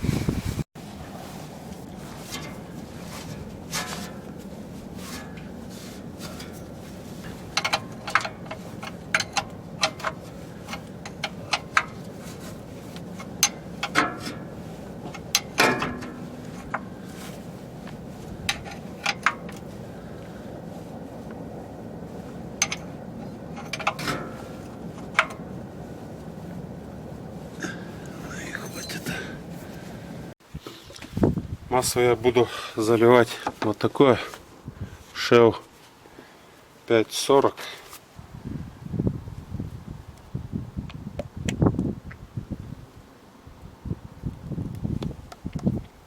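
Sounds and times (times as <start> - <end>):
steady low hum: 0.0 - 30.4
tools and parts clicking: 7.5 - 12.0.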